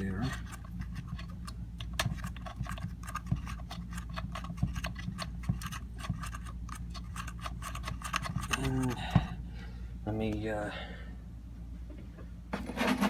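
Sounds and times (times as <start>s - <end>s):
steady low hum: 0.0s - 13.0s
small clicks and scratches of handling: 0.2s - 9.0s.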